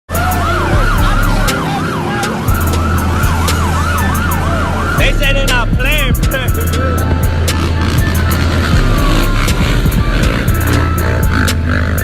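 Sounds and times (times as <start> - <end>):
emergency siren yelping: 0.1 - 12.0
deep low rumble: 4.5 - 11.5.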